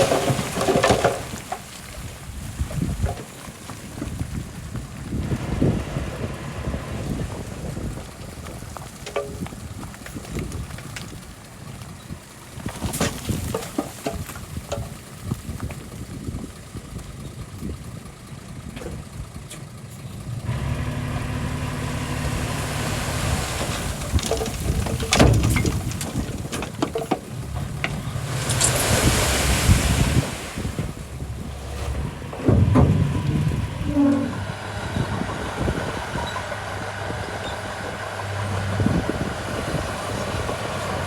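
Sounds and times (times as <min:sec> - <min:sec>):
bulldozer diesel engine running: 0:00.0 - 0:41.0
machine knocks and clanks: 0:23.7 - 0:29.2, 0:31.9 - 0:34.5.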